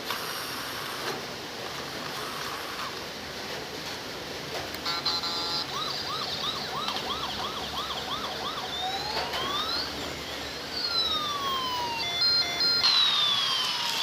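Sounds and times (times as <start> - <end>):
toy police siren: 4.9 - 14.0.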